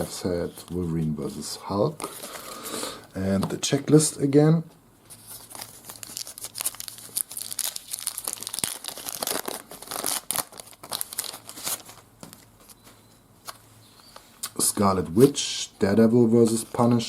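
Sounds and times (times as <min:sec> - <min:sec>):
wrapper crinkling and tearing: 0:05.3 - 0:12.0.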